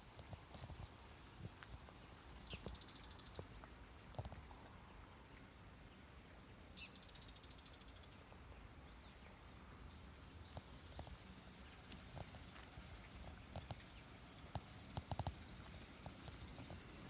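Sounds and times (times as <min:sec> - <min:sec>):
faint high bird calls: 0:01.9 - 0:04.8, 0:10.8 - 0:11.7, 0:15.1 - 0:16.8.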